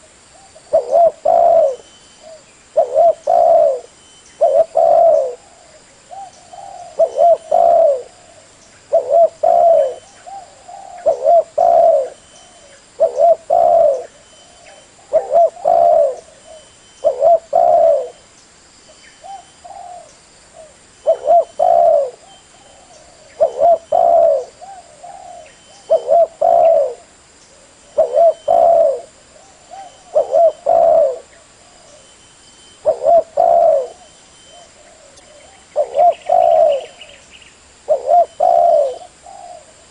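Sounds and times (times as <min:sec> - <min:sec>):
dove cooing: 0:00.0 - 0:18.2, 0:19.2 - 0:32.2, 0:32.8 - 0:37.2, 0:37.8 - 0:39.9.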